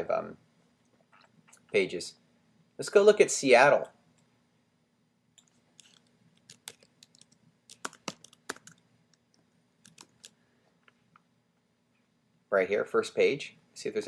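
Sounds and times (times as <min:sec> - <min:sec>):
typing on computer keyboard: 0:05.4 - 0:08.8, 0:09.8 - 0:10.4.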